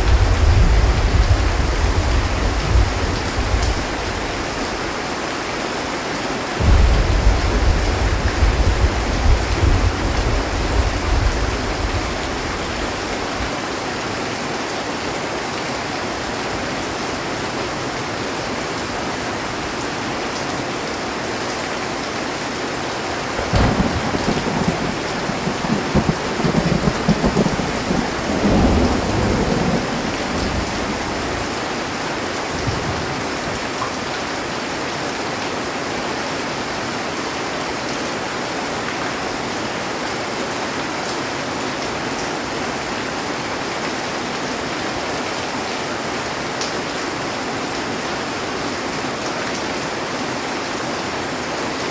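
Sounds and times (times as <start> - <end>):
thunder crack and rumble: 0.0 - 4.6, 6.6 - 13.2, 23.3 - 31.9
heavy rain on a metal roof: 0.0 - 51.9.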